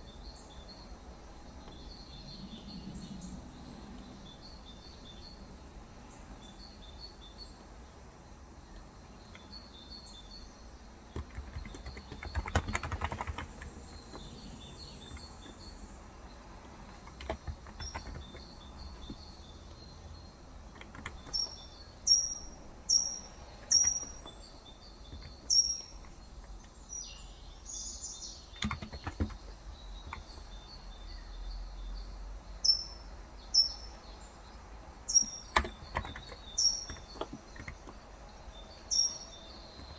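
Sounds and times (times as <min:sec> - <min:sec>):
birds chirping: 0:00.0 - 0:39.9
keyboard typing: 0:11.0 - 0:26.8, 0:28.5 - 0:30.7, 0:35.2 - 0:39.9.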